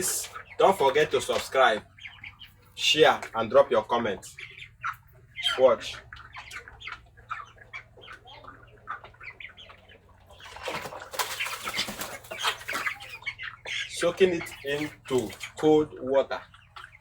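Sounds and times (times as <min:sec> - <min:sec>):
chickens giving soft calls: 0:00.0 - 0:17.0
water splashing: 0:05.5 - 0:17.0
wings flapping: 0:10.4 - 0:13.4, 0:14.4 - 0:15.6.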